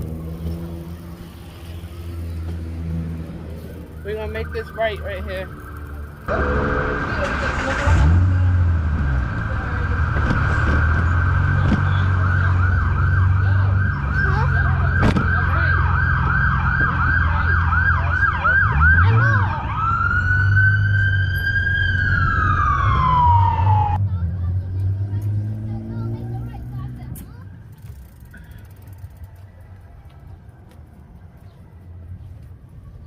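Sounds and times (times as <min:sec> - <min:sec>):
low rumble of traffic: 0:00.0 - 0:33.0
emergency vehicle siren: 0:03.7 - 0:24.0.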